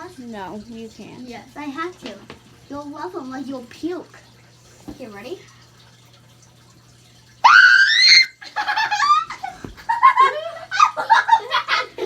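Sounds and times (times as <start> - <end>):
girl screaming: 7.4 - 8.4
girls laughing: 8.4 - 12.0.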